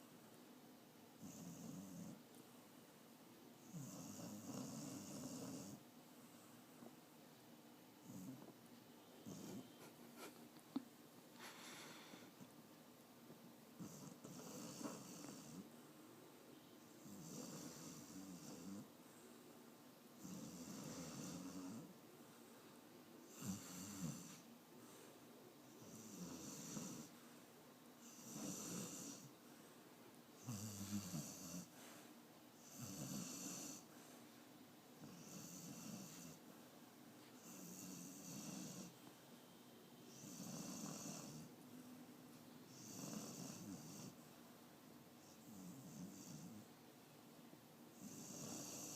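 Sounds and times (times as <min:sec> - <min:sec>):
dog snoring: 0:01.2 - 0:02.2, 0:03.6 - 0:05.8, 0:08.0 - 0:08.5, 0:09.2 - 0:09.8, 0:13.8 - 0:15.7, 0:17.0 - 0:18.9, 0:20.2 - 0:21.9, 0:23.2 - 0:24.4, 0:25.6 - 0:27.2, 0:28.0 - 0:29.3, 0:30.4 - 0:31.8, 0:32.6 - 0:33.9, 0:35.0 - 0:36.4, 0:37.4 - 0:39.0, 0:40.1 - 0:41.5, 0:42.7 - 0:44.2, 0:45.2 - 0:46.7, 0:47.9 - 0:48.9.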